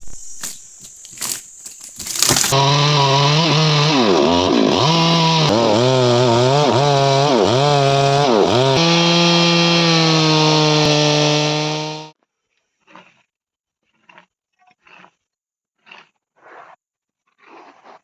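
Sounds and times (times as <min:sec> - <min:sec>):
chainsaw running at high revs: 0:01.2 - 0:12.2.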